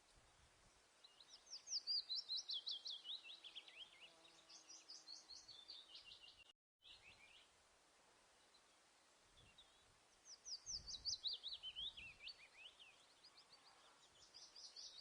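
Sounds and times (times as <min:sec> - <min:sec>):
songbird chirping: 0:00.0 - 0:07.6, 0:08.2 - 0:15.0.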